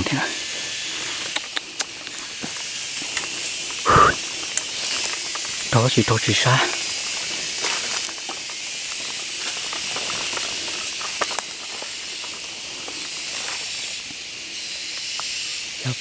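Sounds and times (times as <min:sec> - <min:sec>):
steady high-pitched hiss: 0:00.0 - 0:16.0
faint clicks: 0:01.1 - 0:02.3.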